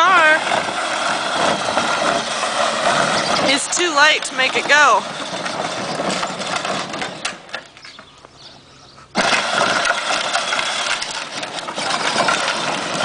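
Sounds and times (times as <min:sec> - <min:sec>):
toy truck motor grinding: 0:00.0 - 0:07.8, 0:09.1 - 0:13.0.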